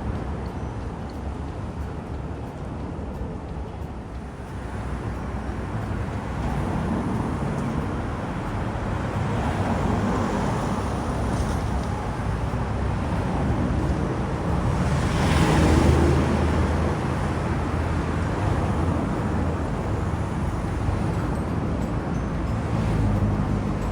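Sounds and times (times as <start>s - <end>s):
street traffic: 0.0s - 23.9s
vehicle passing close by: 12.4s - 21.2s.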